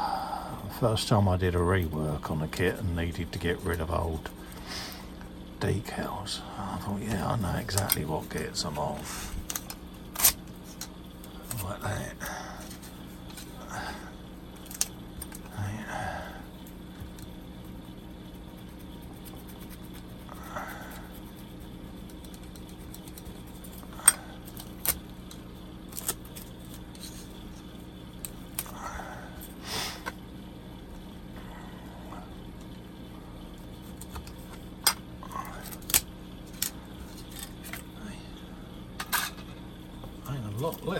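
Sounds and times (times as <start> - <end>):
steady low hum: 0.0 - 40.9
sellotape rasp: 18.2 - 25.0.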